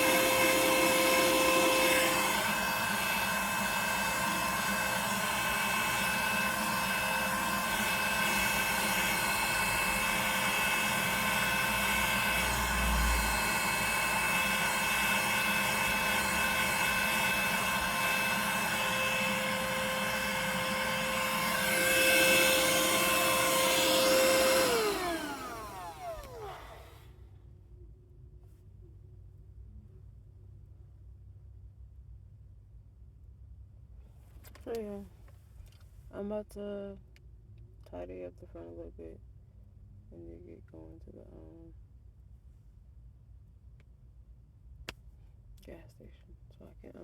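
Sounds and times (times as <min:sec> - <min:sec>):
vacuum cleaner motor whine: 0:00.0 - 0:27.1.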